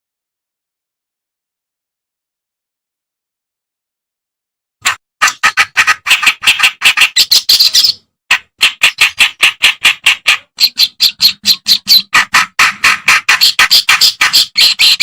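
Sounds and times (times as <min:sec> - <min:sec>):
warbler chattering song: 0:05.4 - 0:08.0, 0:08.6 - 0:12.2, 0:13.0 - 0:15.0.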